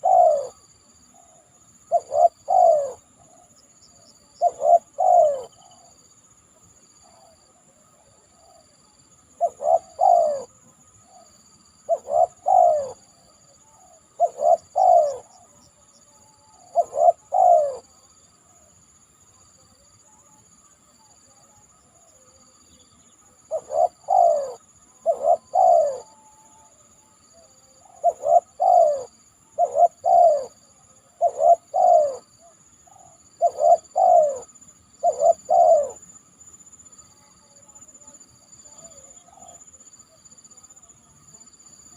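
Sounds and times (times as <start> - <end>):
dove cooing: 0.0 - 3.6, 4.2 - 6.0, 7.0 - 8.6, 9.4 - 15.6, 16.4 - 18.0, 23.4 - 36.1, 38.4 - 39.7.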